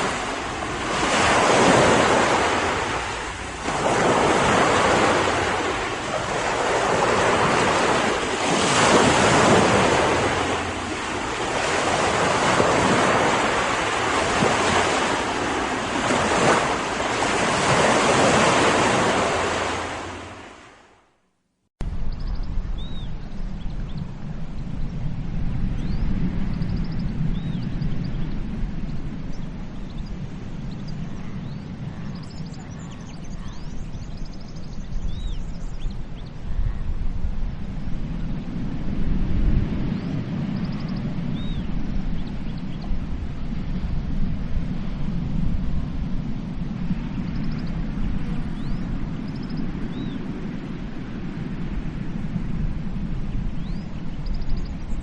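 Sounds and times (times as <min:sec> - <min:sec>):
sea surf rumble: 0:00.0 - 0:21.0, 0:21.8 - 0:55.0
waves breaking on a sandy beach: 0:00.0 - 0:21.0, 0:24.0 - 0:55.0
wind: 0:00.0 - 0:55.0
small birds chirping and trilling: 0:29.3 - 0:36.7.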